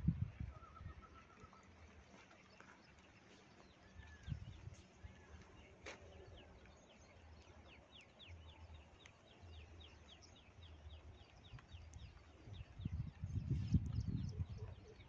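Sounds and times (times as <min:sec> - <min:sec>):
faint bird calls: 0:00.5 - 0:02.2.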